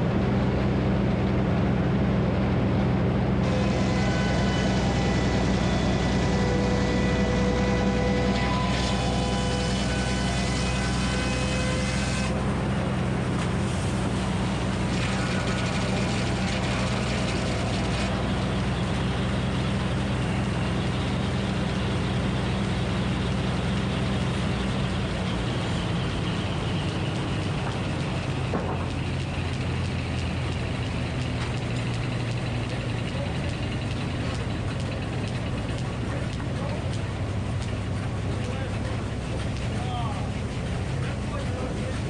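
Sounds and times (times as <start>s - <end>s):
engine droning: 0.0s - 42.0s
sawmill mechanical hiss: 3.4s - 28.3s.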